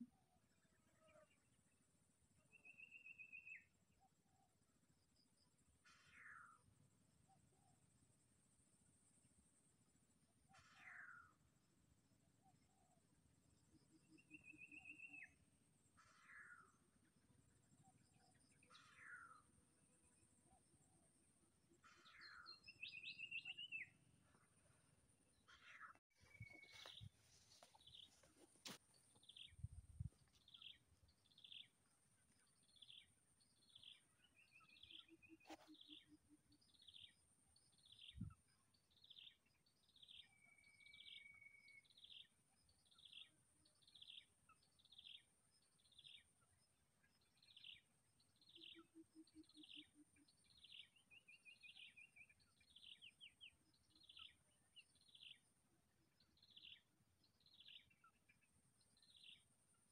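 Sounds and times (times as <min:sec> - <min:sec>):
bird chirping: 0:02.5 - 0:04.5, 0:13.7 - 0:15.4, 0:21.8 - 0:24.5, 0:25.3 - 0:59.9.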